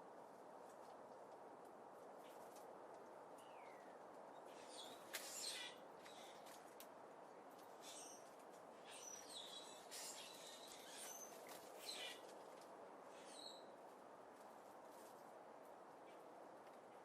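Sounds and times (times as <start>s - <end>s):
faint bird chirps: 7.7s - 12.3s, 13.1s - 13.8s.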